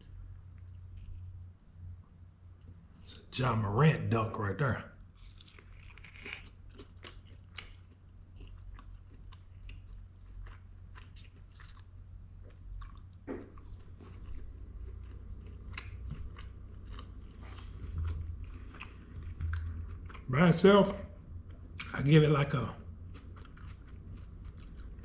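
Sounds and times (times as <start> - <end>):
low steady hum: 0.0 - 25.0
person chewing food: 0.4 - 1.4, 5.0 - 20.3, 22.8 - 25.0.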